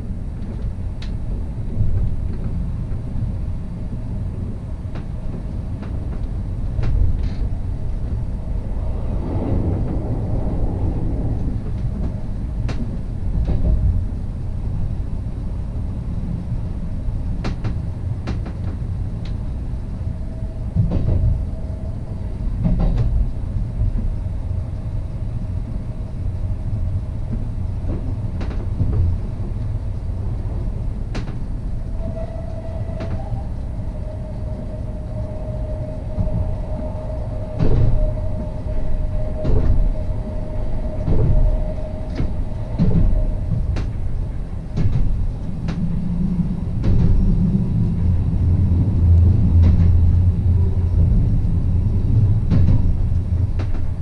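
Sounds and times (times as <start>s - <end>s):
steady whine: 0.0s - 15.5s, 18.7s - 54.0s
train low rumble: 0.0s - 54.0s
track knocks and clicks: 20.7s - 21.4s, 27.3s - 51.2s, 51.8s - 54.0s.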